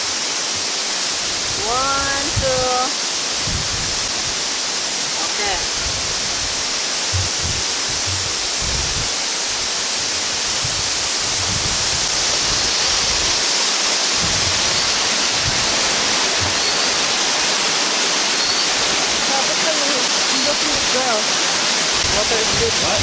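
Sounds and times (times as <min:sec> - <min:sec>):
waterfall roaring: 0:00.0 - 0:23.0
low thumps: 0:05.8 - 0:09.1, 0:14.2 - 0:16.8.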